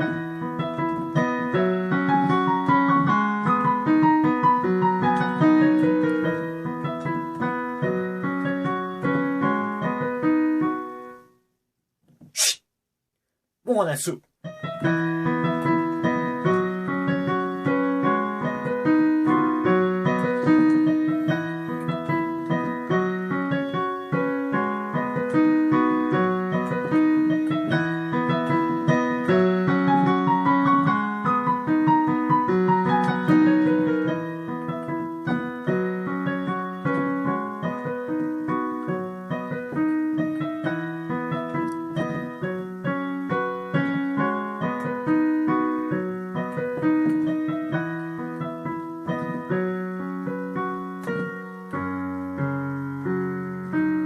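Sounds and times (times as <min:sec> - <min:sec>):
piano melody: 0:00.0 - 0:11.4, 0:13.7 - 0:54.0.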